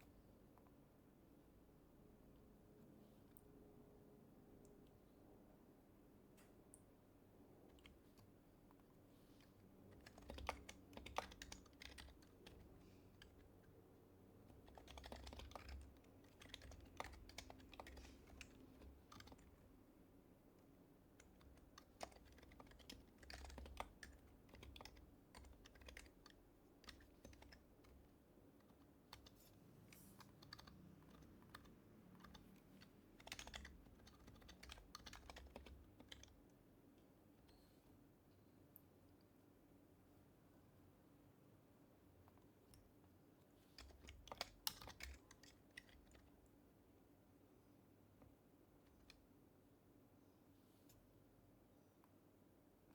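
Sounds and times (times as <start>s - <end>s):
quiet keyboard typing: 6.3s - 37.6s, 42.2s - 46.8s, 48.1s - 49.4s.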